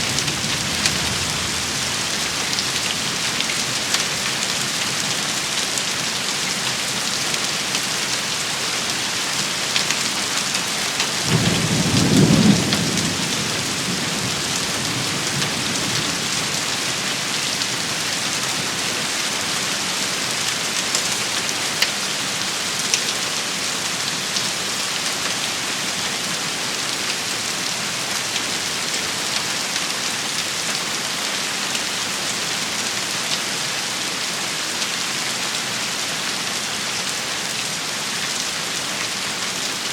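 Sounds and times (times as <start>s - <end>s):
low thunder rumble: 0.0s - 3.3s
heavy rain hissing: 0.0s - 6.2s.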